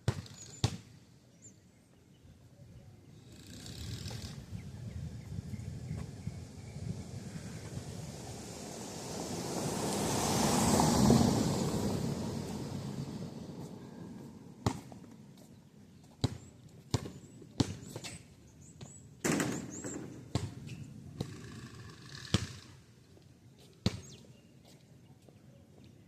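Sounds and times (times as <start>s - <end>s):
basketball bouncing on pavement: 0.0s - 0.9s, 14.6s - 21.4s, 22.2s - 22.8s, 23.8s - 24.3s
vehicle passing: 3.3s - 15.3s.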